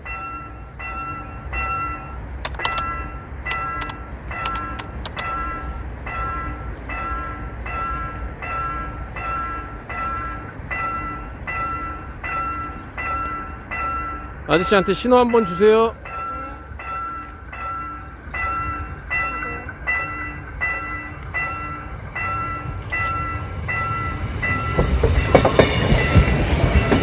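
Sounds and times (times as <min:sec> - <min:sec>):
level crossing warning bell: 0:00.0 - 0:27.0
sharp clicks: 0:02.4 - 0:02.9, 0:03.5 - 0:05.3.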